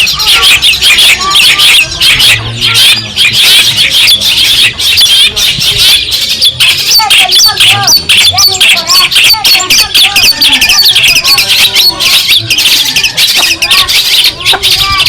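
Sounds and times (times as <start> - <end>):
bird chattering song: 0.0 - 15.0.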